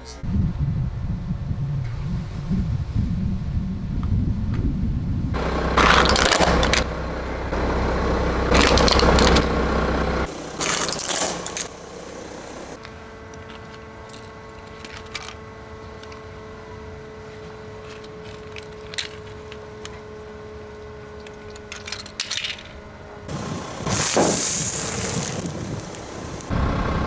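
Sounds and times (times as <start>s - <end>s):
steady whine: 5.2s - 27.0s
car engine idling: 5.4s - 27.0s
small clicks and crackles: 12.8s - 16.4s, 17.8s - 22.8s.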